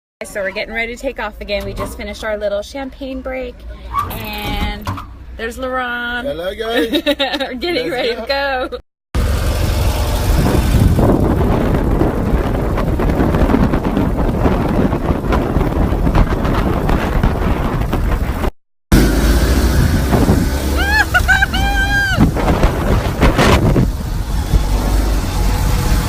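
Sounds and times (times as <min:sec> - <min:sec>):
motorcycle road noise: 0:09.2 - 0:26.0
wind buffeting microphone: 0:09.7 - 0:26.0.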